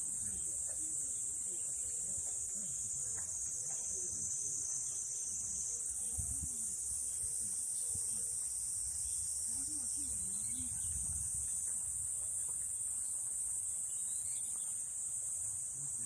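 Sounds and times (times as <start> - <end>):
faint distant voices: 0.0 - 16.0.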